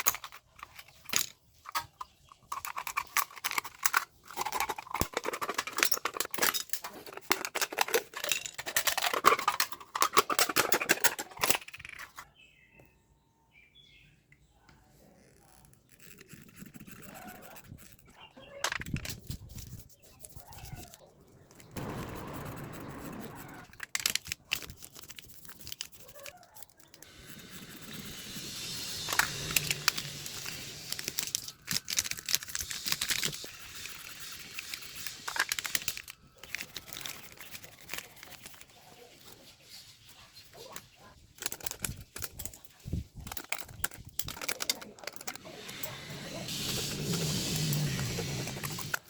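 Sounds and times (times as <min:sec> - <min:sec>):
metal crinkling and scraping: 0:00.0 - 0:12.3, 0:28.9 - 0:49.0
sharp clicks: 0:20.3 - 0:27.1.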